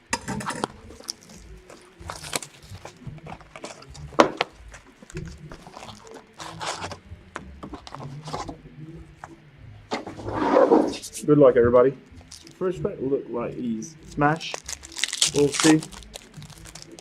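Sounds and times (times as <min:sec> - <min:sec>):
wrapping and foil crinkling and tearing: 0:00.4 - 0:07.0, 0:12.2 - 0:12.6, 0:14.1 - 0:17.0.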